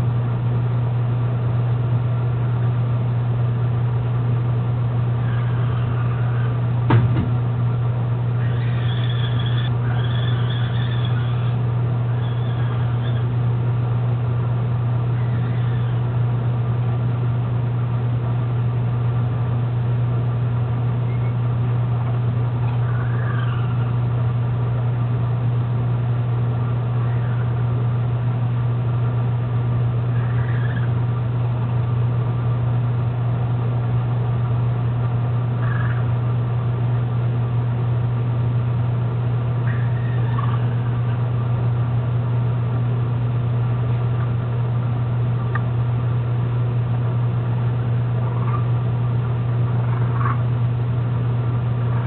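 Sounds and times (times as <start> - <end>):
steady low hum: 0.0 - 52.0
faint short chirping calls: 8.4 - 13.4, 15.1 - 16.1, 21.0 - 21.4, 22.6 - 24.0, 30.1 - 31.0, 35.6 - 36.1, 39.6 - 41.2.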